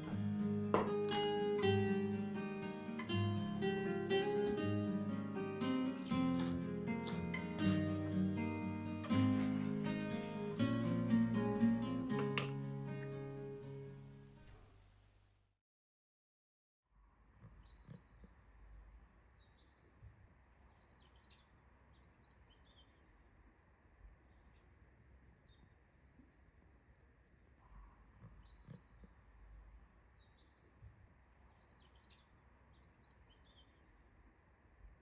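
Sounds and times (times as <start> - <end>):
small birds chirping: 0.0 - 11.4, 17.4 - 34.7
soft thumps: 0.1 - 1.4.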